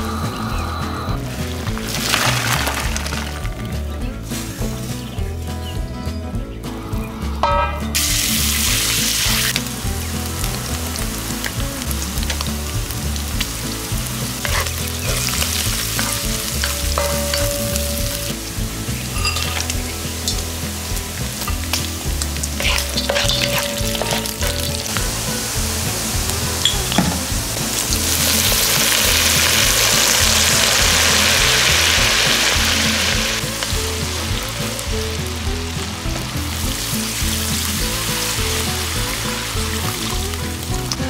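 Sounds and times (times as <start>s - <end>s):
meat sizzling in hot oil: 8.0s - 40.7s
wooden spatula scraping and stirring: 14.2s - 17.7s, 19.5s - 26.3s.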